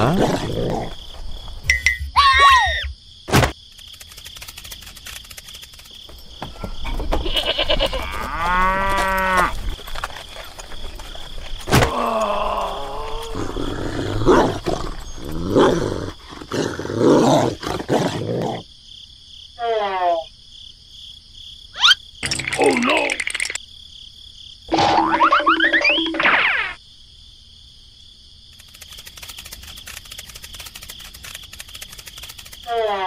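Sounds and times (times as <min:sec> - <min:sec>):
crickets chirring: 0:00.0 - 0:33.0
cattle mooing: 0:07.5 - 0:09.5.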